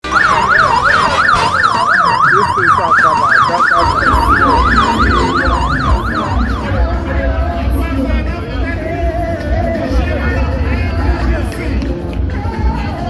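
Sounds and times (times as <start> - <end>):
electronic siren yelping: 0.0 - 7.8
low rumble: 3.8 - 13.0.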